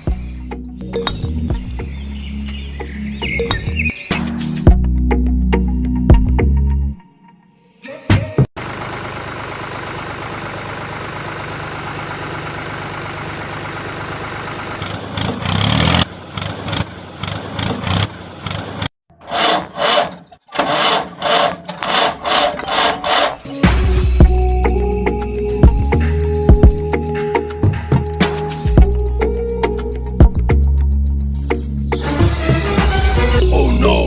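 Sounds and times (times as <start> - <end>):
small engine running: 8.6 - 23.4
rhythmic machine pulsing: 24.2 - 31.7.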